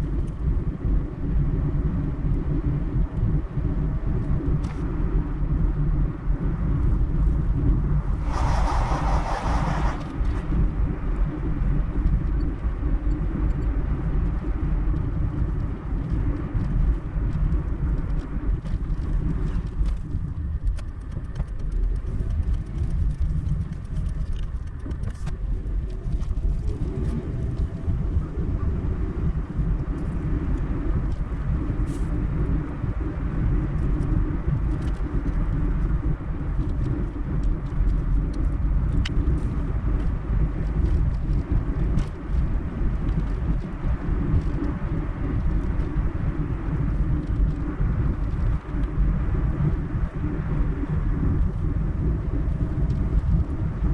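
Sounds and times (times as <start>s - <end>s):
car engine and tyres rumbling: 0.0s - 53.9s.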